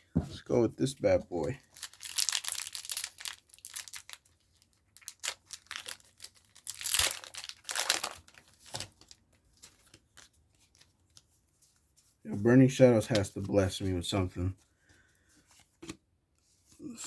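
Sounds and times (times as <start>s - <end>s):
foil wrapper crinkling and tearing: 1.6s - 11.2s.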